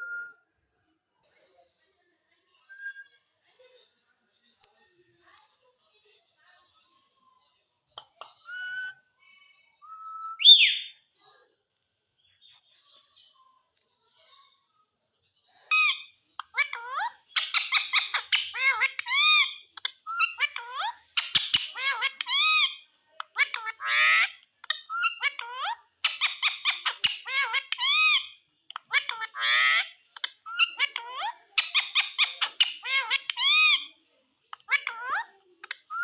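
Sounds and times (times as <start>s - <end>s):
parakeet squawking and chattering: 8.2s - 9.1s, 10.4s - 11.0s, 15.7s - 36.0s.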